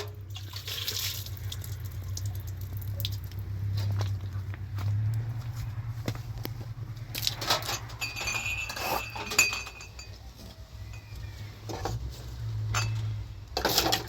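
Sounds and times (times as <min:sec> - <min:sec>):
dishes and utensils clinking: 0:07.4 - 0:14.0.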